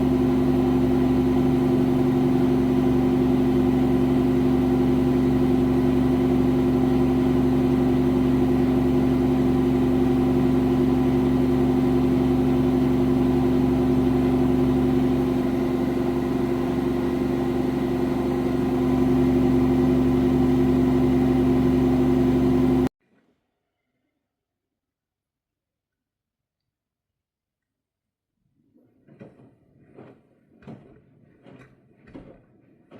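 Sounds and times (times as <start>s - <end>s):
washing machine humming: 0.0s - 22.9s.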